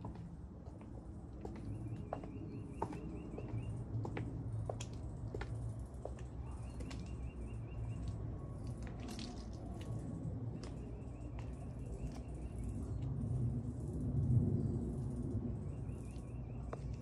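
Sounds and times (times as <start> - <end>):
footsteps on concrete: 0.0 - 12.3
low steady rumble: 7.2 - 17.0.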